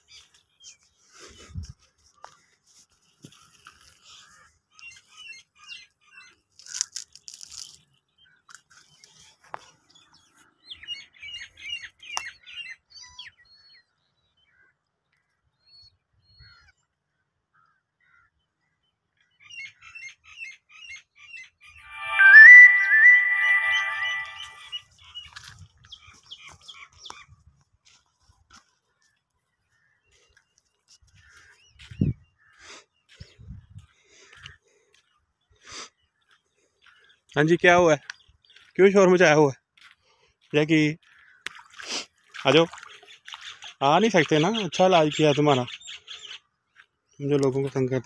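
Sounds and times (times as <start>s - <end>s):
brief burst of noise: 21.9s - 24.6s
small birds chirping: 29.0s - 48.0s.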